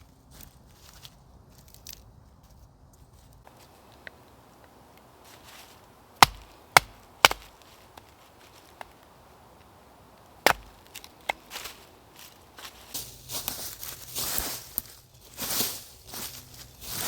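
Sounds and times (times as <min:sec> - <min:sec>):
chopping strikes on wood: 0:06.2 - 0:07.6, 0:10.4 - 0:11.6.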